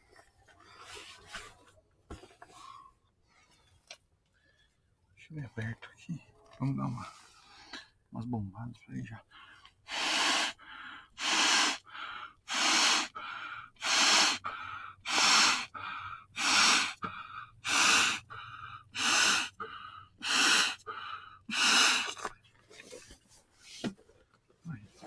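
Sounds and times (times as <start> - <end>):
manual air pump hissing: 9.9 - 10.6, 11.2 - 13.2, 13.8 - 19.6, 20.2 - 22.3.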